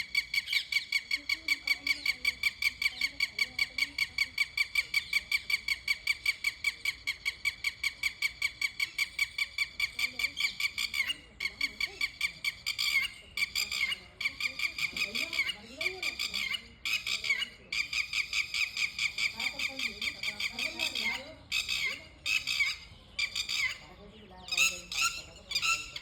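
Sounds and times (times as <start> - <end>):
bird calling squeaky notes: 14.6 - 26.0.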